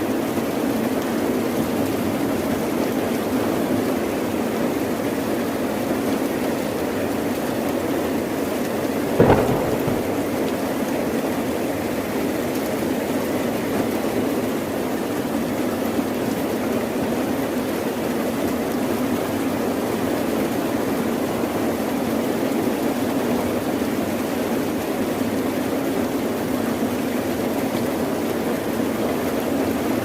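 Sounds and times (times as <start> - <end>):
heavy rain: 0.0 - 30.0
thunder crack: 9.2 - 10.8.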